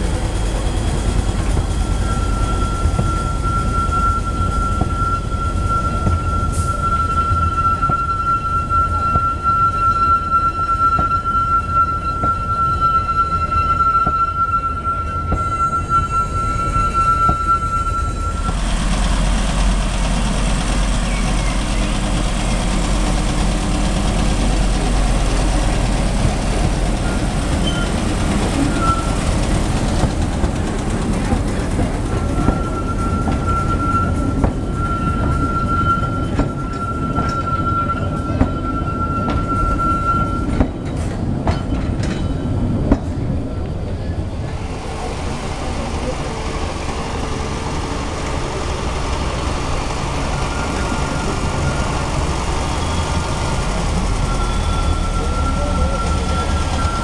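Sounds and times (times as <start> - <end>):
train wheels rumbling: 0.0 - 57.0
train wheels squealing on track: 0.0 - 57.0
small diesel locomotive running: 15.4 - 57.0.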